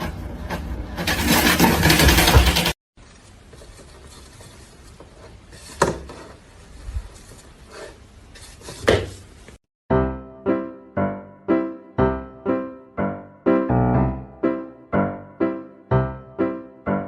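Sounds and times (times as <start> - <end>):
piano music: 9.9 - 17.0.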